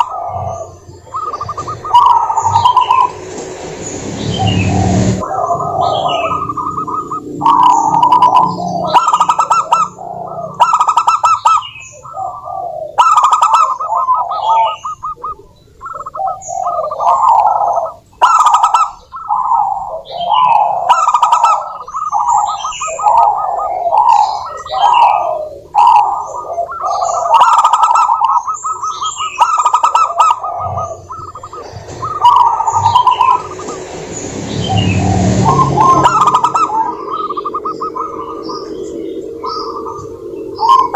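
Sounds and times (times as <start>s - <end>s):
rushing noise with low rumble: 0.0s - 10.9s, 30.6s - 40.9s
doves trilling coo song: 0.0s - 40.9s
small birds chirping: 0.0s - 40.9s.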